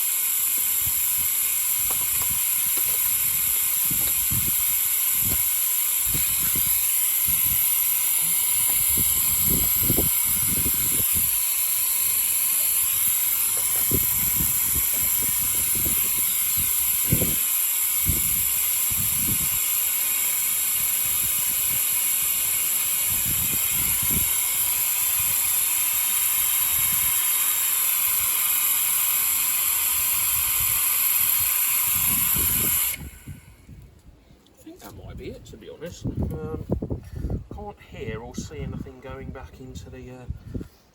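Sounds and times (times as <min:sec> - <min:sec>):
oil extractor hissing: 0:00.0 - 0:33.8.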